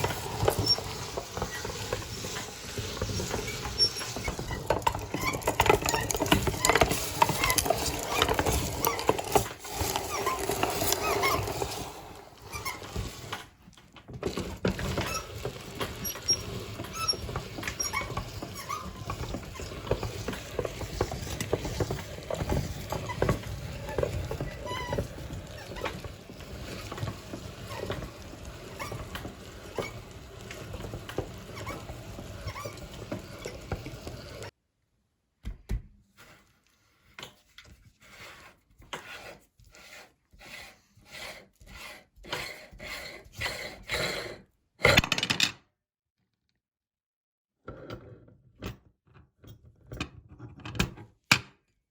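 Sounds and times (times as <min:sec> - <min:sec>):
meat grinder crackling and clicking: 0:00.0 - 0:34.5.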